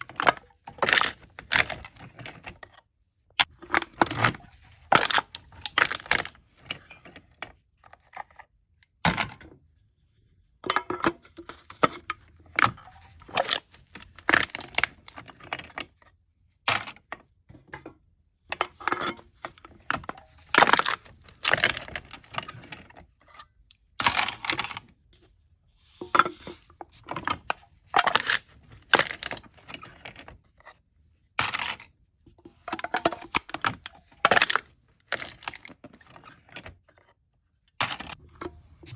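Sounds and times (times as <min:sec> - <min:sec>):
aluminium cans being crushed: 0:00.0 - 0:02.7, 0:03.4 - 0:07.4, 0:10.7 - 0:16.0, 0:18.5 - 0:23.0, 0:24.0 - 0:24.9, 0:26.0 - 0:30.4, 0:31.4 - 0:31.9, 0:32.5 - 0:36.8, 0:37.8 - 0:38.9.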